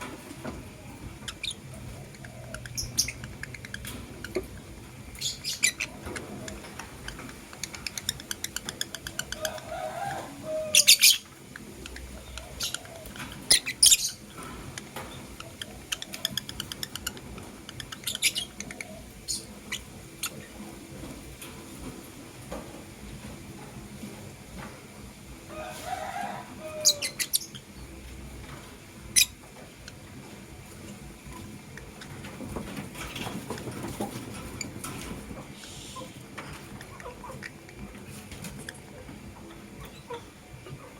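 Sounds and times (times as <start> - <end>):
lovebirds chirping: 1.2 - 9.7, 10.6 - 20.5.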